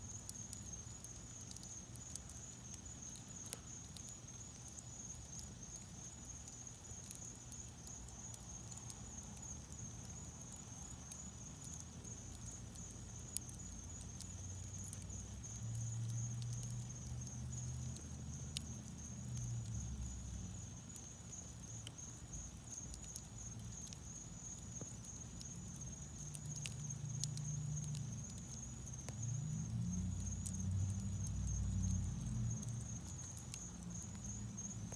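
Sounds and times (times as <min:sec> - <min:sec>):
fire crackling and popping: 0:00.0 - 0:34.9
low rumble of flame: 0:00.0 - 0:34.9.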